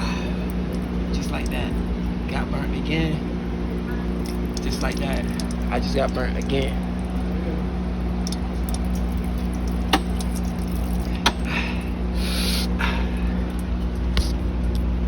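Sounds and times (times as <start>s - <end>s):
low mechanical hum: 0.0s - 15.0s
short hissing bursts: 12.2s - 12.8s.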